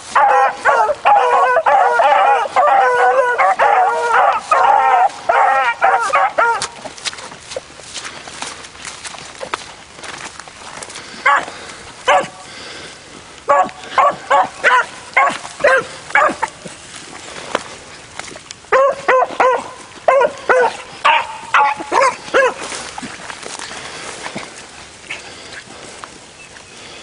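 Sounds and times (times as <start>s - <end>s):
dogs barking: 0.0s - 7.3s, 11.2s - 12.5s, 13.4s - 16.8s, 18.7s - 23.0s.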